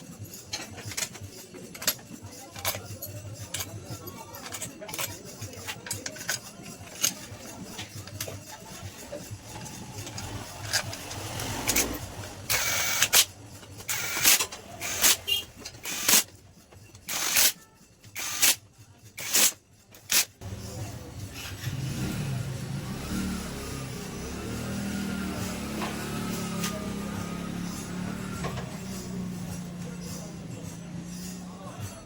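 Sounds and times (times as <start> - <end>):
metal tools clinking: 0.0 - 21.8.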